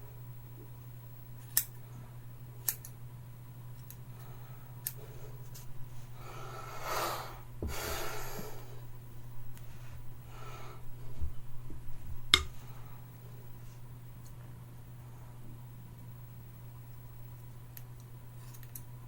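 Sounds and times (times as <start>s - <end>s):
steady low hum: 0.0s - 19.0s
scissors snipping hair: 1.4s - 1.8s, 2.6s - 3.0s, 17.8s - 18.9s
breathy hisses: 6.1s - 8.9s.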